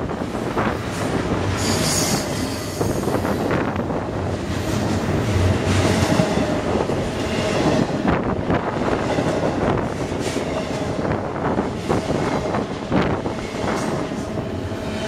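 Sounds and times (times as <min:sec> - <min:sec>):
freight train wheels rumbling: 0:00.0 - 0:15.0
train wheels clacking: 0:04.4 - 0:15.0.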